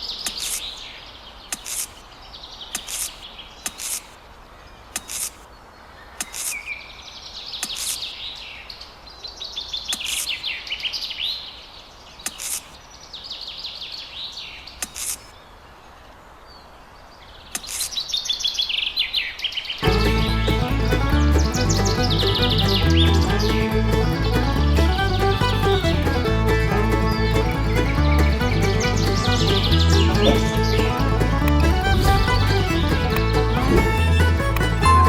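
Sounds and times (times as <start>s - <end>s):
birds chirping in trills: 0.0s - 35.0s
sharp clicks: 0.2s - 0.8s, 1.5s - 2.0s, 2.7s - 4.2s, 4.9s - 5.5s, 6.2s - 6.7s, 7.6s - 8.2s, 9.9s - 10.4s, 12.2s - 12.8s, 14.8s - 15.4s, 17.5s - 18.0s, 20.0s - 34.9s
music: 19.8s - 35.0s.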